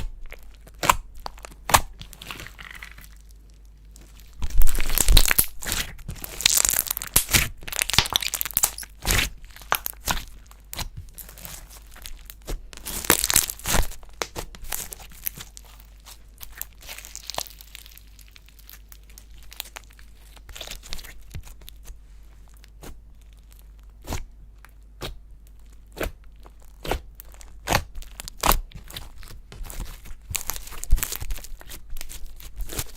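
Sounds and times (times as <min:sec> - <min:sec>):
slime squished by hand: 0:00.0 - 0:22.0.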